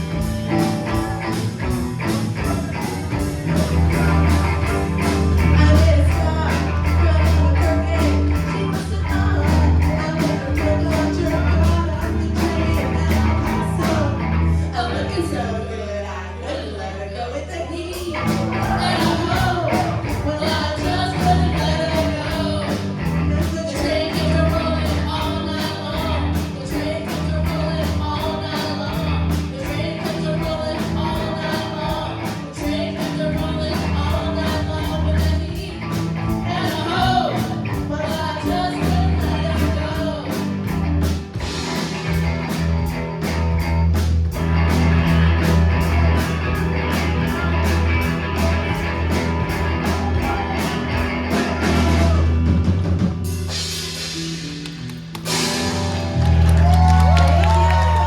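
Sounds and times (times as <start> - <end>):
live rock band playing: 0.0 - 16.0, 17.9 - 58.0
person singing: 0.0 - 40.7, 47.3 - 53.0.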